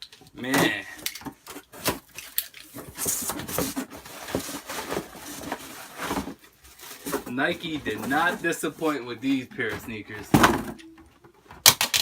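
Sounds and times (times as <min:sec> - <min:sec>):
shoe box rustling and knocks: 0:02.7 - 0:10.8.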